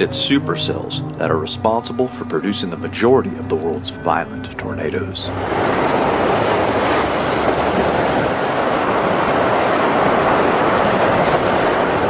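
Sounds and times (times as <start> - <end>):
heavy rain pouring: 5.3 - 12.0.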